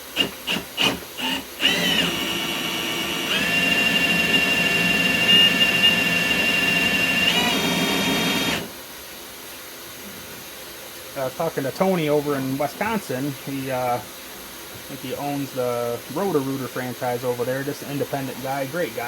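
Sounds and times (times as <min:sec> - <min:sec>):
cordless drill whining: 0:00.0 - 0:08.7.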